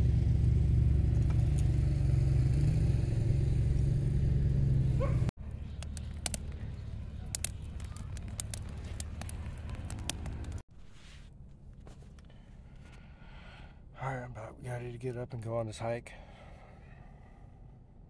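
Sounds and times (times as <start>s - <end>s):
wood fire crackling and popping: 5.7s - 10.6s.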